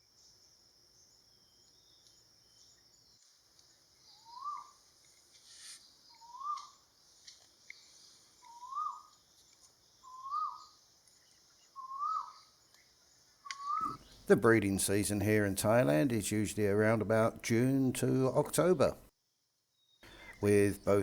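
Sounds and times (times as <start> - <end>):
high insect hiss: 0.1 - 14.3
bird whistled call: 4.1 - 4.8, 5.6 - 6.8, 8.4 - 9.1, 10.0 - 10.8, 11.7 - 12.5, 13.5 - 14.1.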